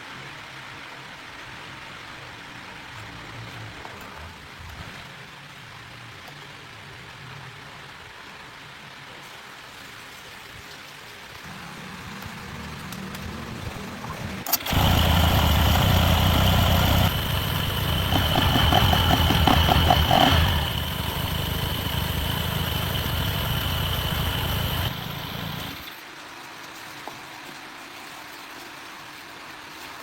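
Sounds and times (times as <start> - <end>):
motor running: 14.4 - 26.0.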